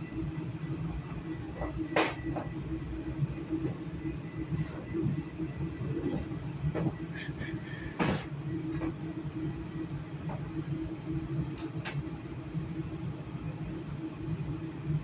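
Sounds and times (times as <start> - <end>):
train interior rumble and hum: 0.0 - 15.0.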